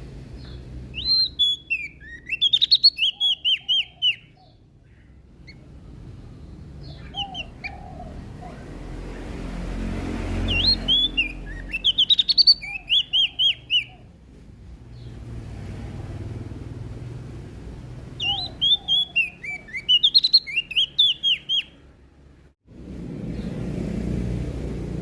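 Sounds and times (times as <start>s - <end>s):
warbler chirping: 0.2s - 14.2s, 14.8s - 15.5s, 18.0s - 21.9s.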